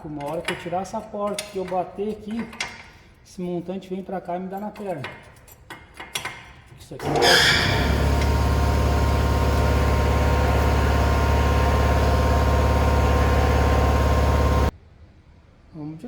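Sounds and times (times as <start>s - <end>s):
air compressor running: 7.0s - 14.7s.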